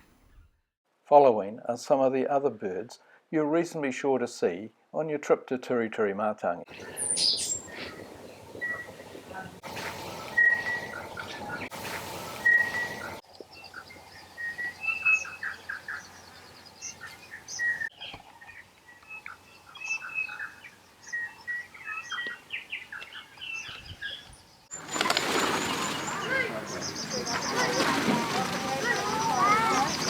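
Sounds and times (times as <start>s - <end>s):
songbirds singing and calling: 6.7s - 30.0s.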